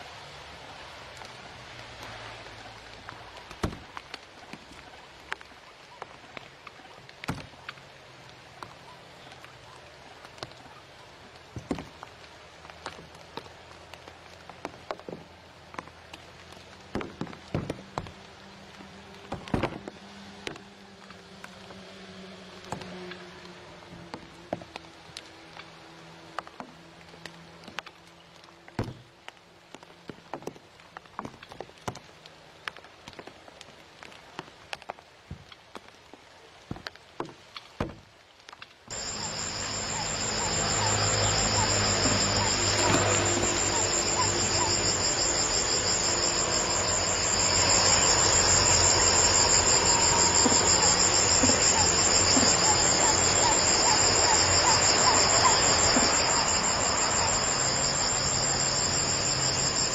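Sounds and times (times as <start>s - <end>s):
insects trilling: 38.9s - 59.9s.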